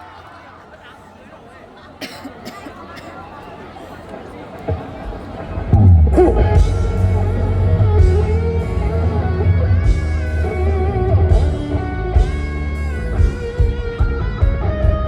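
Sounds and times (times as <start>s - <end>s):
live rock band music: 4.7s - 15.0s.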